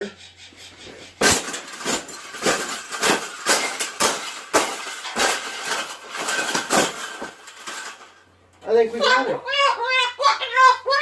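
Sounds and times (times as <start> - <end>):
hard clinking knocks: 1.2 - 8.3.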